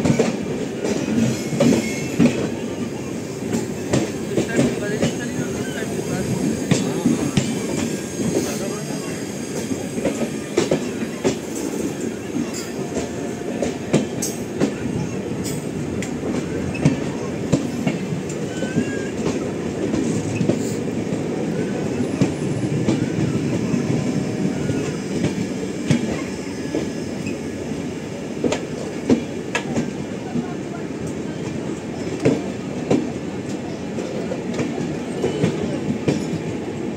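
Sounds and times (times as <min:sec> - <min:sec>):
train wheels rumbling on rails: 0:00.0 - 0:36.9.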